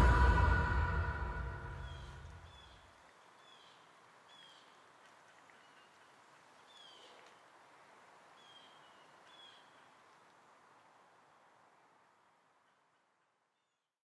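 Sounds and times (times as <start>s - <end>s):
woodland birds chirping: 1.8s - 4.8s, 5.5s - 7.3s, 8.4s - 10.0s.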